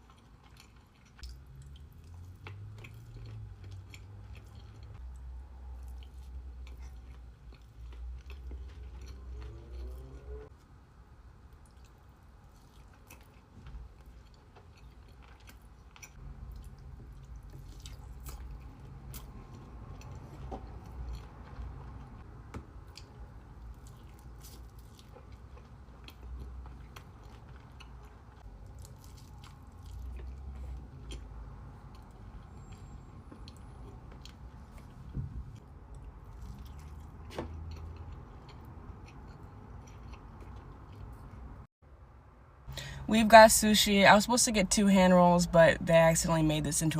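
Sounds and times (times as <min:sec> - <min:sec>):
close chewing mouth sounds: 0:00.0 - 0:10.5, 0:11.5 - 0:41.7.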